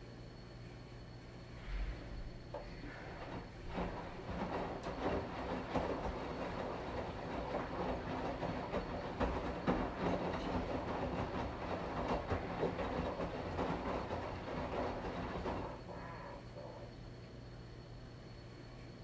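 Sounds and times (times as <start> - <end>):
steady low hum: 0.0 - 19.0
washing machine churning: 2.2 - 17.0
soft knocks and rattles: 2.6 - 15.8.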